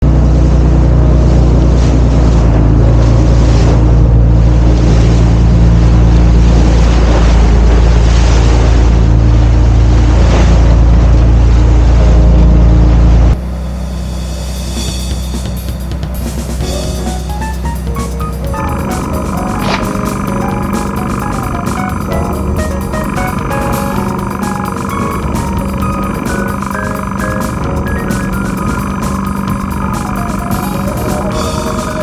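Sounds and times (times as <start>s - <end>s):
boat engine running: 0.0s - 32.0s
wind and water hiss: 13.4s - 32.0s
music with drums: 13.9s - 32.0s.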